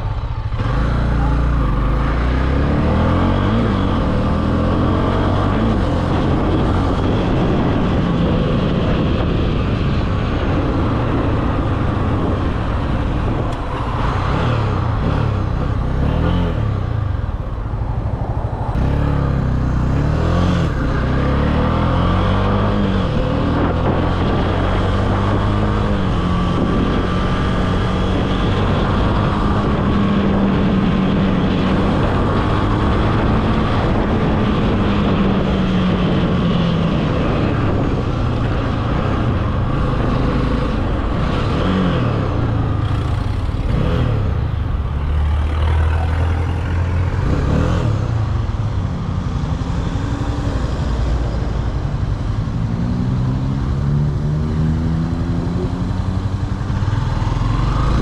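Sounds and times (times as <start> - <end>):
motorcycle engine running: 38.5 - 52.6.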